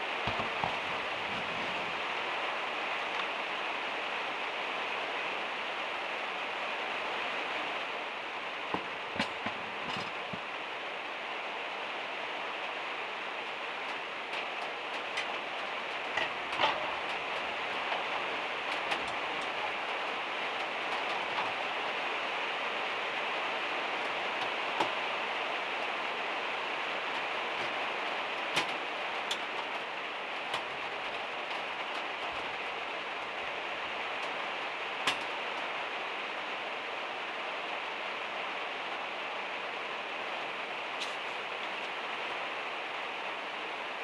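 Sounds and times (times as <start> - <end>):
heavy rain on metal roof: 0.0 - 44.0
drop taps: 0.2 - 1.0.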